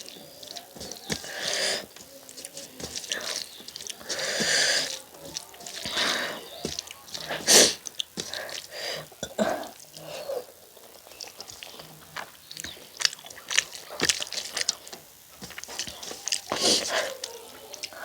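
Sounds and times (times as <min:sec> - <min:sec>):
mouth clicks and smacks: 0:00.0 - 0:10.1
wet chewing: 0:00.0 - 0:18.0.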